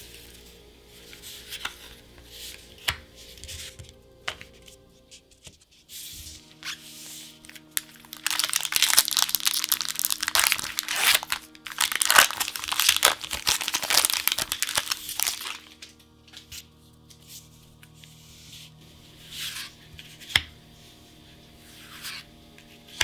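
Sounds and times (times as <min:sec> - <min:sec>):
plastic packaging crinkling: 0:07.3 - 0:16.4.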